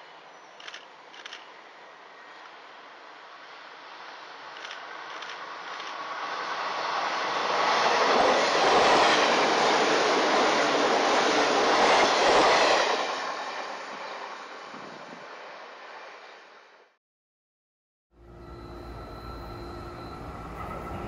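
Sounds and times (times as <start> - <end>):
train wheels on rails: 0.6 - 1.6, 3.4 - 16.4.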